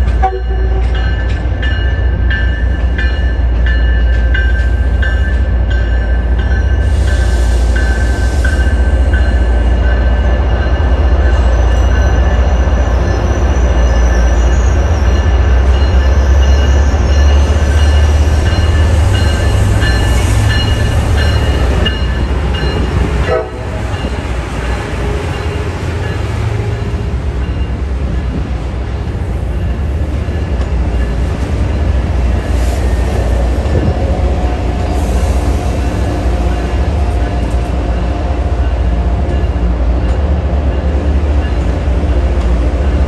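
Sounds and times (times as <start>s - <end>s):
trains rumbling past: 0.0s - 43.0s.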